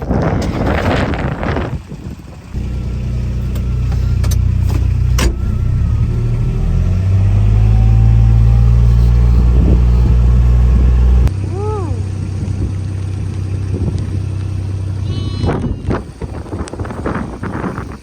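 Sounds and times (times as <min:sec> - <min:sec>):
vehicle engine starting and running: 0:00.0 - 0:18.0.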